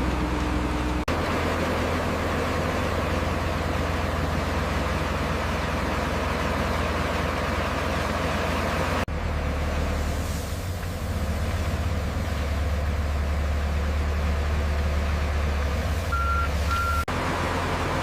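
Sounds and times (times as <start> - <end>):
diesel machinery engine humming: 0.0 - 18.0
reversing alarm beeps: 16.1 - 17.1.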